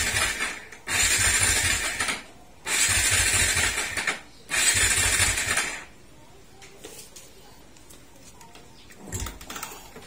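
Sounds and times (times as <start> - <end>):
motorcycle starter cranking: 0.0 - 5.9.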